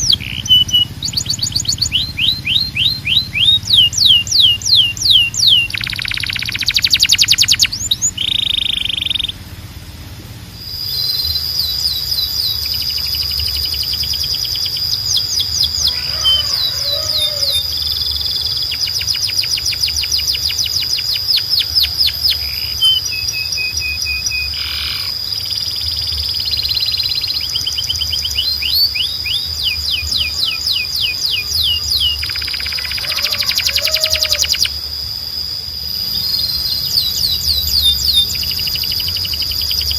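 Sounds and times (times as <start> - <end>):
canary singing: 0.0 - 9.6, 10.6 - 39.9.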